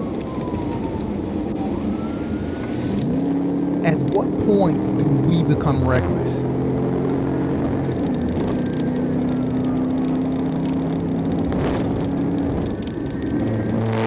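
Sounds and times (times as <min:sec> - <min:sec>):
road and tyre noise: 0:00.0 - 0:14.0
car engine droning: 0:01.8 - 0:14.0.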